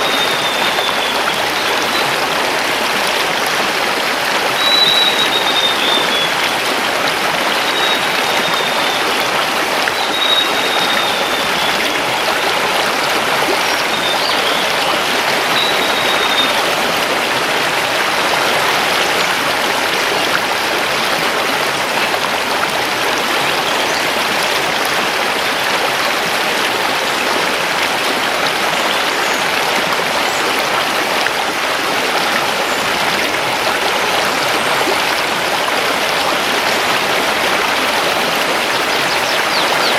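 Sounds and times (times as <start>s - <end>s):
bird calling: 0.0s - 2.3s, 4.6s - 9.2s, 36.2s - 39.9s
river rushing over stones: 0.0s - 39.9s.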